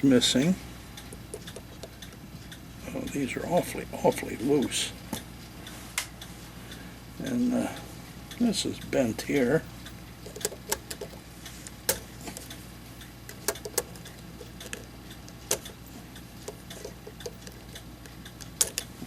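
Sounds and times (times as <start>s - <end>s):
metal parts and tools clicking: 10.2s - 11.2s, 18.4s - 18.9s.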